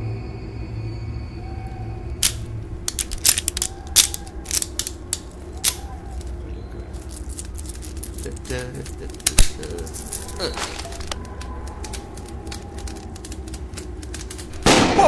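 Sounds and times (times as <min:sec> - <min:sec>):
low steady drone: 0:00.0 - 0:15.0
bone cracking: 0:02.2 - 0:06.4, 0:07.2 - 0:14.7.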